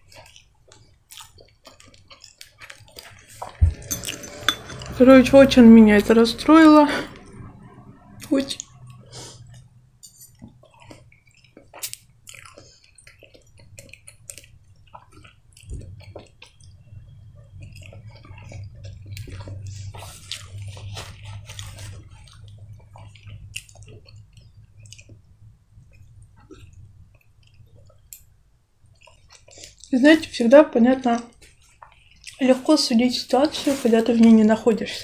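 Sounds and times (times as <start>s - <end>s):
wet chewing smacks: 0.0s - 3.6s, 10.4s - 28.1s, 29.0s - 30.0s
low steady hum: 3.0s - 35.0s.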